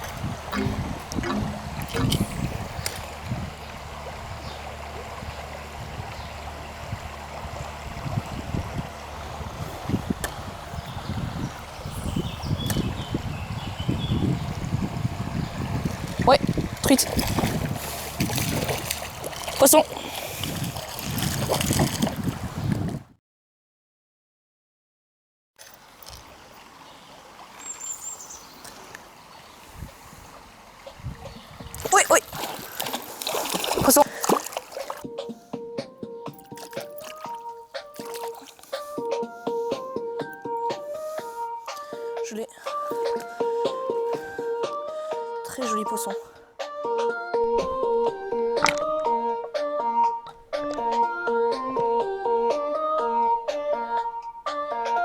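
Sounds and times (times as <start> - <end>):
river water rushing: 31.8 - 35.0.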